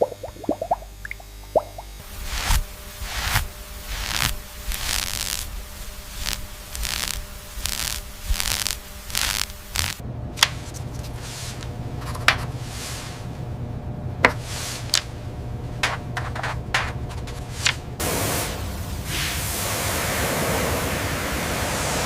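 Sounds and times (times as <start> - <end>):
rhythmic scrubbing strokes: 0.0 - 10.0
steady low hum: 0.0 - 22.0.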